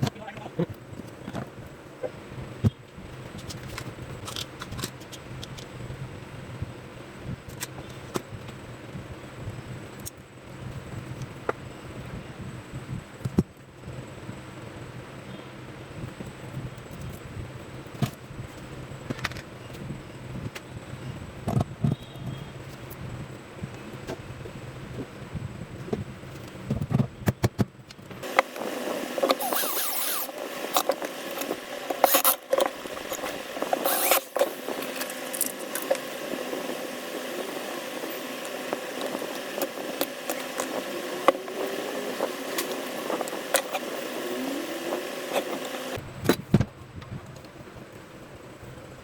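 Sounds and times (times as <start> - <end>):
steady hum: 0.0 - 49.0
metal clicks and scrapes: 3.3 - 5.7, 28.3 - 36.1.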